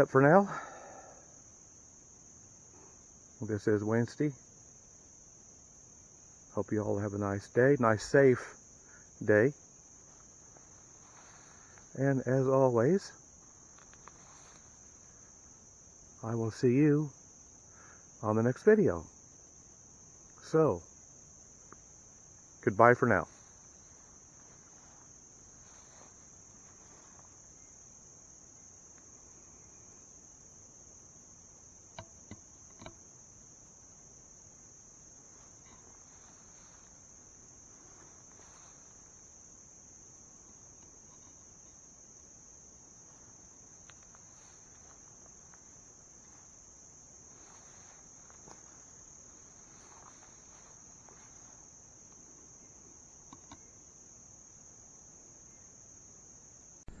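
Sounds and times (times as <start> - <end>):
insects droning: 0.0 - 57.0
faint sharp clicks: 53.3 - 53.7.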